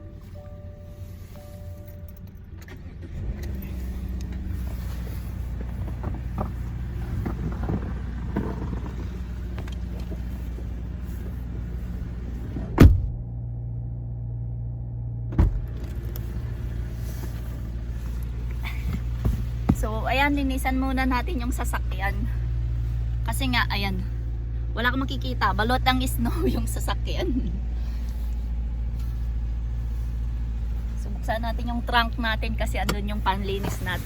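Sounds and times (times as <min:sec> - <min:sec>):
car engine idling: 0:00.0 - 0:34.0
loud thud: 0:12.6 - 0:13.2.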